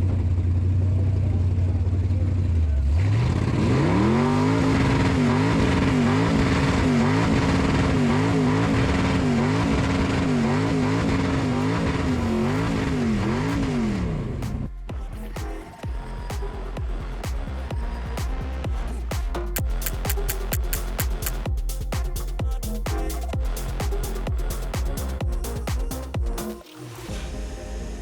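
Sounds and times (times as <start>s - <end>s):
car engine revving hard: 2.9s - 14.6s.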